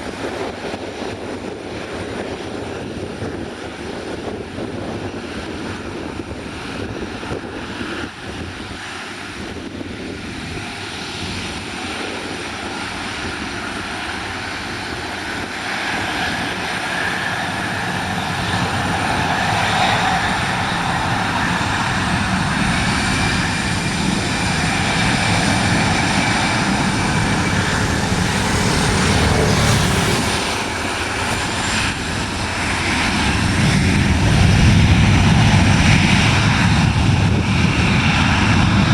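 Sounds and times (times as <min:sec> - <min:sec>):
airliner engines: 0:00.0 - 0:38.9.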